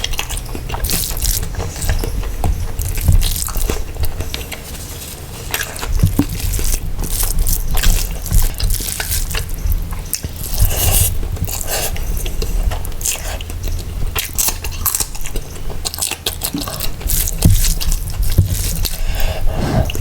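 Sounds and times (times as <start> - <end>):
wet chewing and smacking: 0.0 - 20.0.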